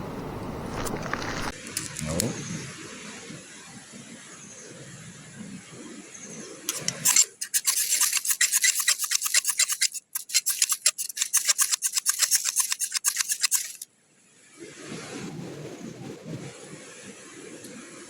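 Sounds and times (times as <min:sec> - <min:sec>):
fast even scraping: 0:06.7 - 0:13.8.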